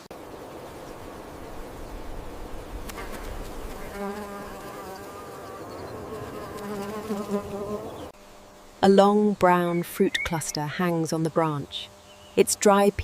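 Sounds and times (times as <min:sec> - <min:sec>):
flying insect buzzing: 0:00.2 - 0:08.9.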